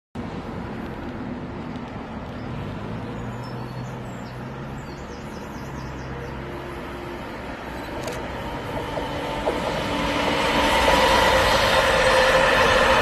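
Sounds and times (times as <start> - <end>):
diesel train engine hum: 0.2 - 13.0
small birds chirping: 2.3 - 6.7.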